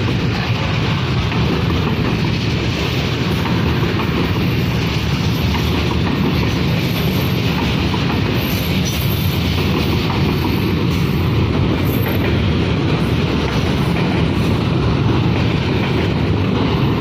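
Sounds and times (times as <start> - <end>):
freight train wheels on rails: 0.0 - 17.0.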